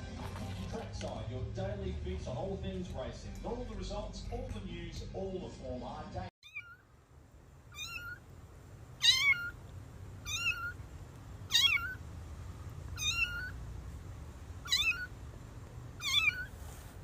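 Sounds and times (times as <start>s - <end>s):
cat meowing: 6.4s - 6.9s, 7.7s - 8.2s, 9.0s - 9.6s, 10.2s - 10.8s, 11.5s - 12.0s, 12.9s - 13.6s, 14.6s - 15.2s, 16.0s - 16.6s.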